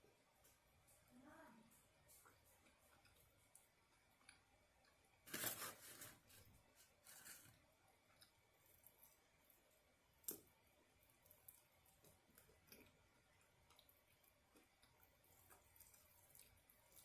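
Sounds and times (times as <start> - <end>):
soft eating clicks: 0.3 - 5.0, 8.0 - 17.0
handling noises: 5.3 - 7.5.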